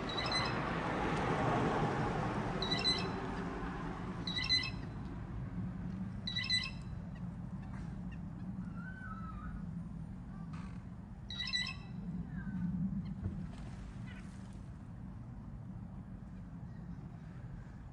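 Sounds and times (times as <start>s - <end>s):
bird squawking: 0.1s - 0.6s, 2.6s - 3.1s, 4.3s - 4.8s, 6.3s - 6.8s, 11.3s - 11.8s
faint wavering whistle: 0.1s - 0.6s, 2.6s - 3.2s, 4.3s - 4.8s.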